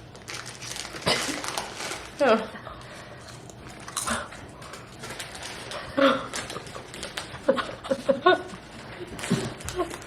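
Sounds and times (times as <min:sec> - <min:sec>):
chips crunching being chewed: 0:03.3 - 0:07.4.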